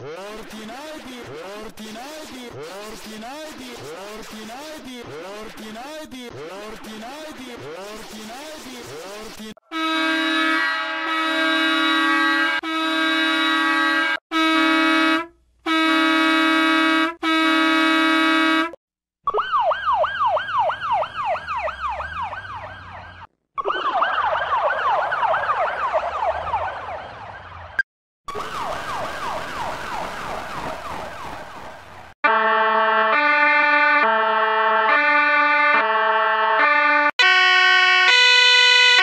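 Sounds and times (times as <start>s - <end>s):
bus horn blasts: 9.6s - 18.8s, 32.2s - 39.0s
emergency vehicle sirens warbling: 19.2s - 39.0s.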